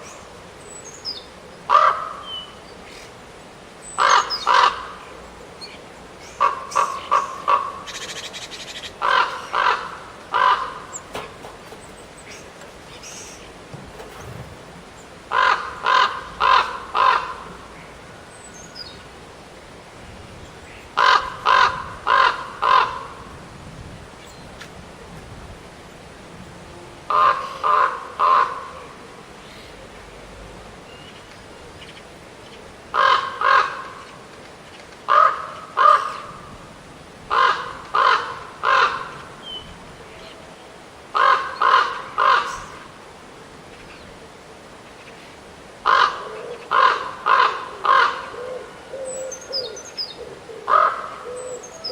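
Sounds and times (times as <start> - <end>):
crow cawing: 1.7 - 2.2, 4.0 - 4.9, 9.0 - 11.0, 15.3 - 17.7, 21.0 - 23.2, 27.1 - 28.7, 33.0 - 33.9, 35.1 - 36.2, 37.3 - 39.2, 41.2 - 42.7, 45.8 - 49.0, 50.7 - 51.5.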